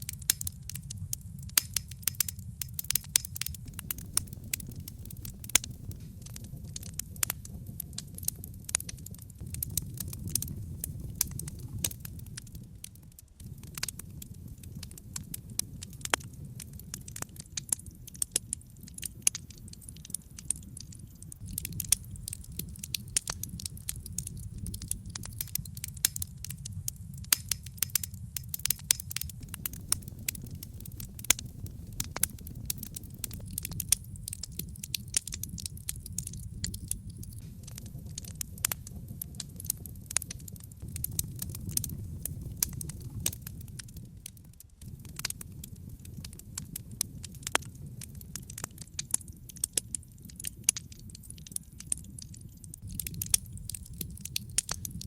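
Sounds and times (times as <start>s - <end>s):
logs burning in fireplace: 0.0s - 55.0s.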